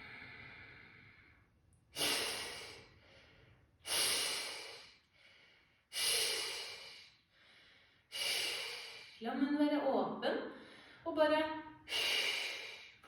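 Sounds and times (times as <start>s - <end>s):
soft in-breaths: 0.0s - 9.2s, 10.5s - 11.1s.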